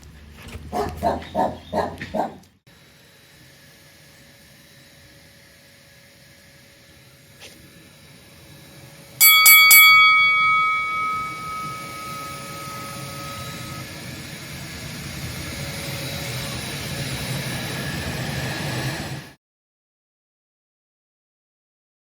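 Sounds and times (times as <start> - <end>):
bell-like chime strikes: 9.2 - 13.9.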